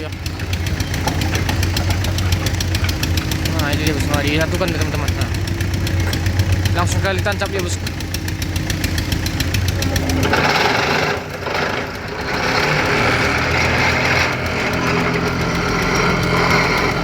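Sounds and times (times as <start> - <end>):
vehicle engine revving hard: 0.0 - 17.0.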